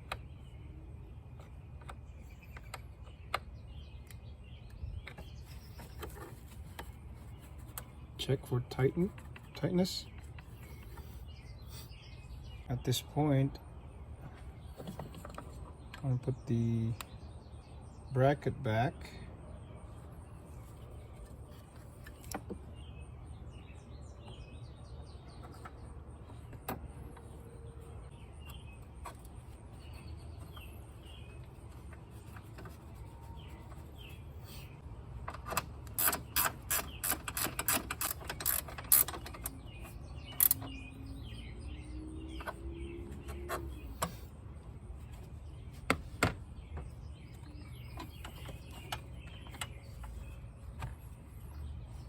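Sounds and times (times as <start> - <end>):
faint birds chirping: 0.0 - 52.0
ratchet wrench clicking on metal: 35.9 - 39.5.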